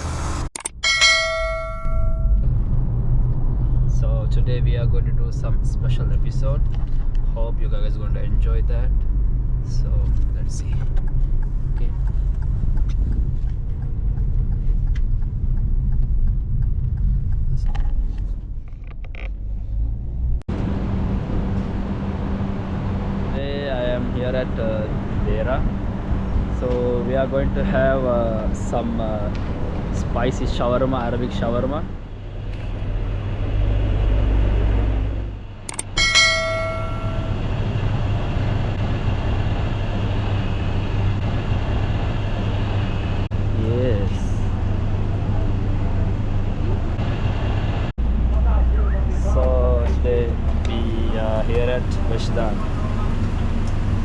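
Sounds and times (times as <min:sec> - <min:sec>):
car rumbling on the move: 0:00.0 - 0:54.0
bright metallic ring: 0:00.8 - 0:02.4, 0:35.7 - 0:37.6.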